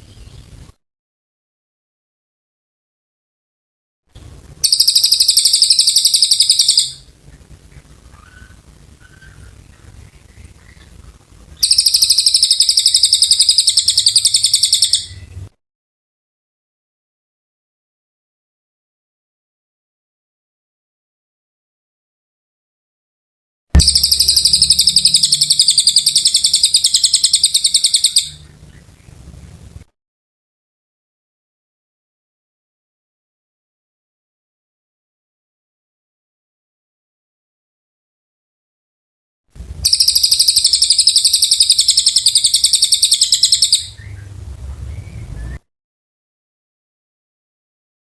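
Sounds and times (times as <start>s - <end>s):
bird singing rapid trill: 4.6s - 7.1s, 11.6s - 15.4s, 23.8s - 29.2s, 39.8s - 45.6s
faint low hum: 6.6s - 12.0s, 23.8s - 29.9s, 39.6s - 45.6s
faint low rumble: 23.8s - 29.9s, 39.6s - 40.2s, 43.9s - 45.6s.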